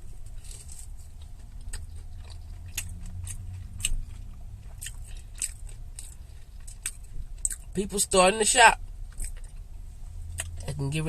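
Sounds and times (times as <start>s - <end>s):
crunchy chewing of fried food: 0.0s - 7.9s, 8.8s - 10.8s
low steady rumble: 0.0s - 11.0s.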